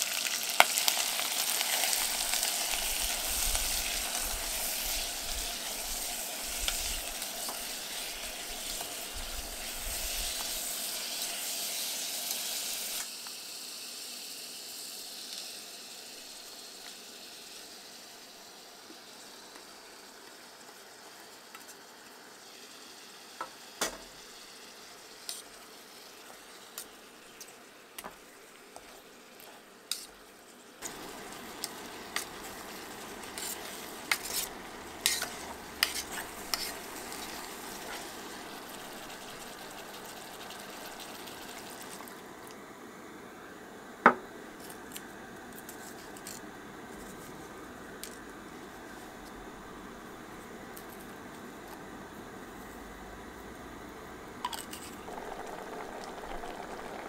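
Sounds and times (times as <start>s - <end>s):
food sizzling in oil: 0.0s - 42.4s, 54.4s - 57.0s
utensil scraping a pot: 31.6s - 38.2s.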